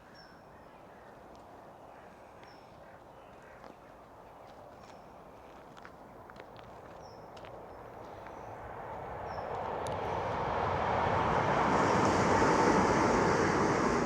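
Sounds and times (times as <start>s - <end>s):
passenger train rumbling: 7.8s - 14.0s.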